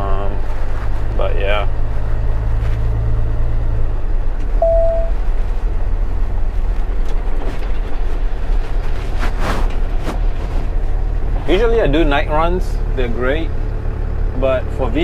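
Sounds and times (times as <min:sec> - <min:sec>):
road noise: 0:00.0 - 0:15.0
truck engine drone: 0:00.0 - 0:15.0
short beep: 0:04.6 - 0:05.2.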